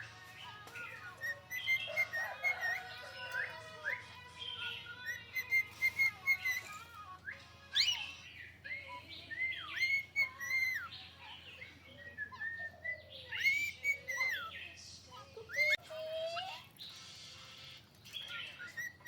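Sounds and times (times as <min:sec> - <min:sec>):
parrot whistling and chirping: 0:00.0 - 0:11.4, 0:12.1 - 0:14.6, 0:15.4 - 0:19.0.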